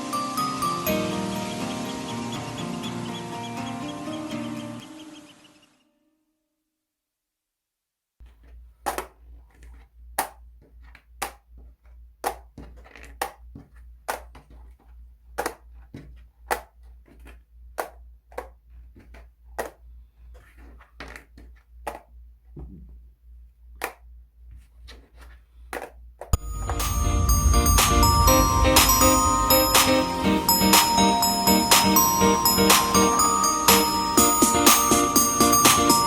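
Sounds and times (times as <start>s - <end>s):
low steady hum: 26.4s - 34.4s.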